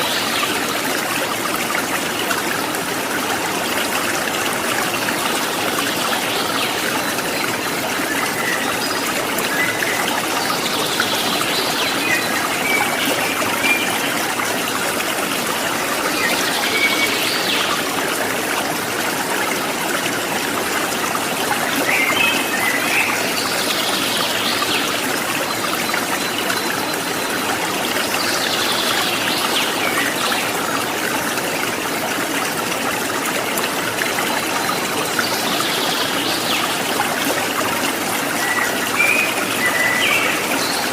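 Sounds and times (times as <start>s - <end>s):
water trickling and splashing: 0.0s - 40.9s.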